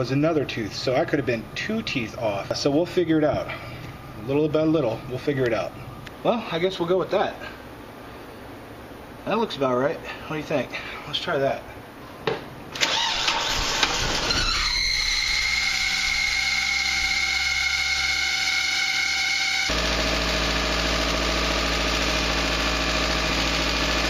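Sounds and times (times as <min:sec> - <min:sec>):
high-pitched pulley squeal: 0:13.3 - 0:19.7
car engine idling: 0:15.4 - 0:24.0.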